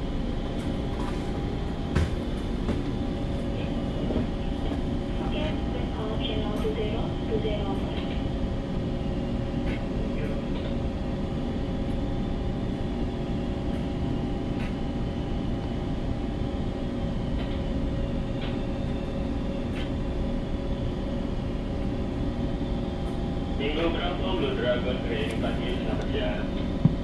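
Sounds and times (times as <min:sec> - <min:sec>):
machinery tonal hum: 0:00.0 - 0:08.2
ship engine low rumble: 0:00.0 - 0:27.0.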